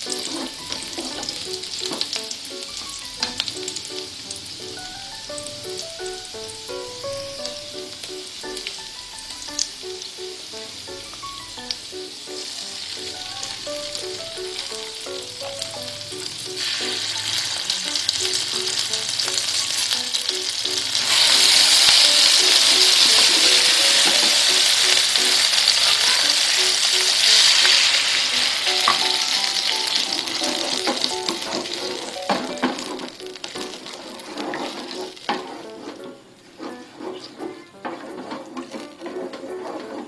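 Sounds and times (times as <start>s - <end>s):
food sizzling in hot oil: 0.0s - 35.6s.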